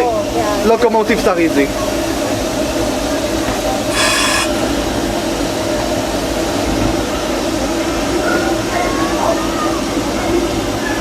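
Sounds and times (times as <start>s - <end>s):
rolling rail noise: 0.0s - 8.2s
steam hiss: 3.8s - 4.8s.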